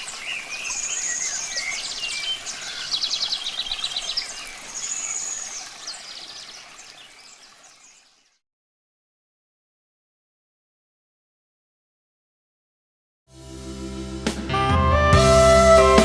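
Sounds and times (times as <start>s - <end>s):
running water: 0.0s - 8.4s
songbirds singing: 0.0s - 8.4s.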